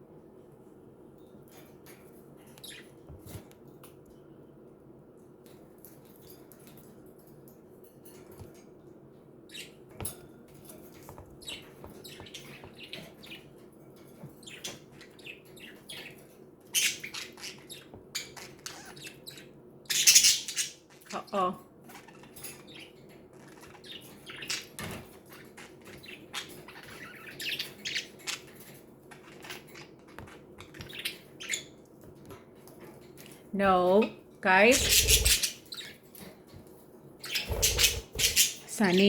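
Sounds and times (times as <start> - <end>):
budgerigars chirping and chattering: 14.3 - 31.8, 34.5 - 36.2, 37.2 - 39.0.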